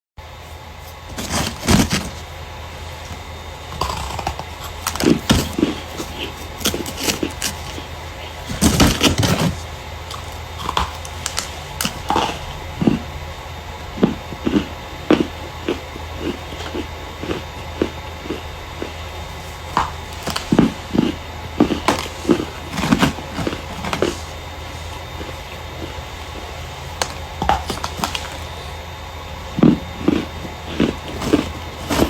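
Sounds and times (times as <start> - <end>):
faint steady hum: 0.2 - 32.0
starch crunching: 0.8 - 32.0.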